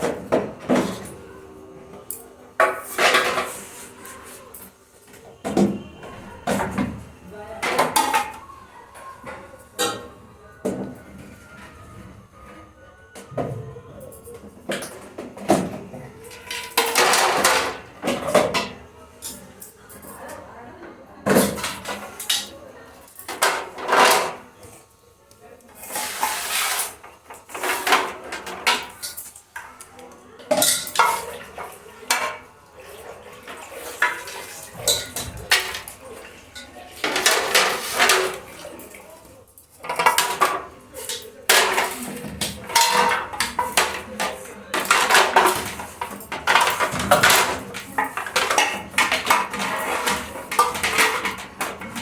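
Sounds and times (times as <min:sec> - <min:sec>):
dishes and utensils clattering: 0:00.0 - 0:12.6, 0:13.2 - 0:24.9, 0:25.7 - 0:52.0.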